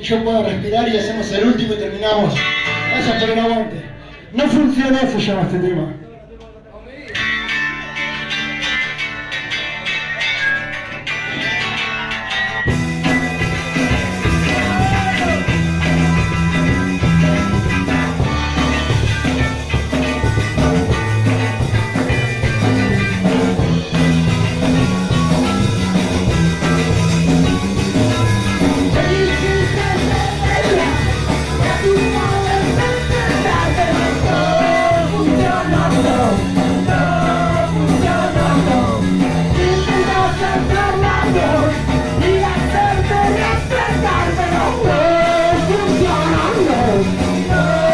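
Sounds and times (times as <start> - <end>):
punk rock band playing live: 0.0 - 5.2, 7.1 - 47.9
person singing: 13.8 - 16.7, 28.6 - 47.9.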